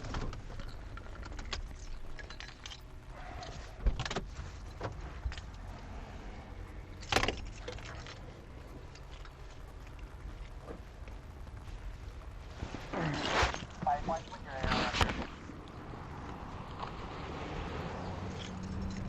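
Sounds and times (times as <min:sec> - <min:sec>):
car engine low rumble: 0:00.0 - 0:19.0
keys and gear jingling: 0:18.1 - 0:19.0.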